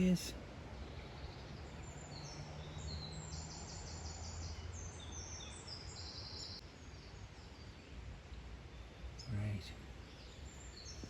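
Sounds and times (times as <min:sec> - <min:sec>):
low background hum: 0:00.0 - 0:00.5
songbirds singing: 0:00.0 - 0:11.0.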